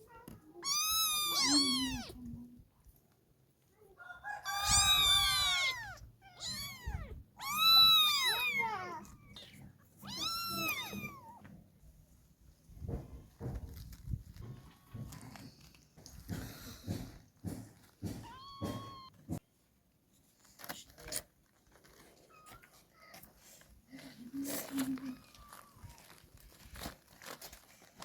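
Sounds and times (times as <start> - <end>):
kittens meowing: 0.6 - 2.2, 4.4 - 11.4, 18.2 - 19.1.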